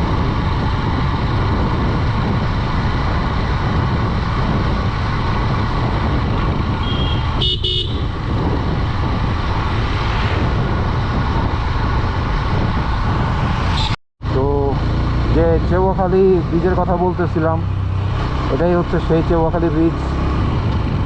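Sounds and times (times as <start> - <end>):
motorcycle engine cruising: 0.0 - 21.0
wind and road rush: 0.0 - 21.0
vehicle horn beeps: 6.8 - 8.1.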